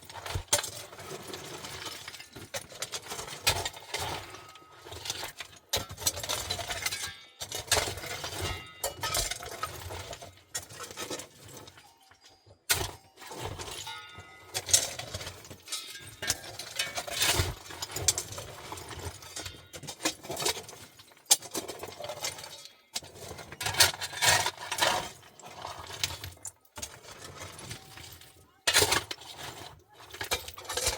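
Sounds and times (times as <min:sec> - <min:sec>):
clinks and knocks of hard objects: 0:00.0 - 0:30.9.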